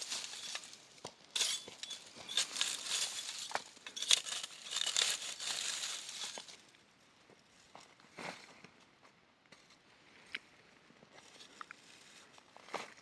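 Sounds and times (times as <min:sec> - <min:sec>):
crinkling and rustling: 0:00.0 - 0:06.7.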